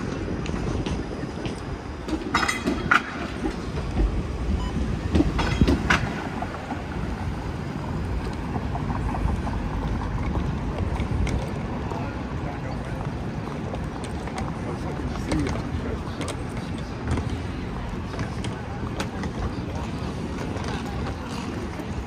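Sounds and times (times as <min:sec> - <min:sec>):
rail vehicle rumbling past: 0:00.0 - 0:13.9.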